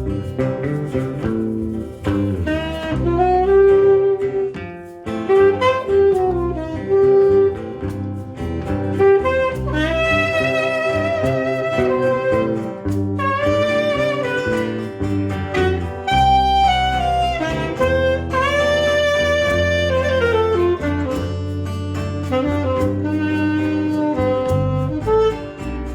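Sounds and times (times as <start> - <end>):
plucked guitar: 0.0 - 25.9
saxophone melody: 0.0 - 25.9.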